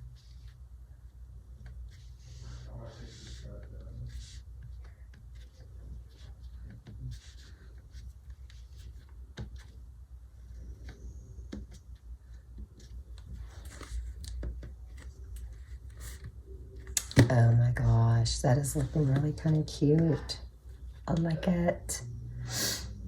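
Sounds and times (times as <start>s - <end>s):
steady low hum: 0.0s - 23.0s
paper rustling and scratching: 1.5s - 9.8s, 10.4s - 17.3s.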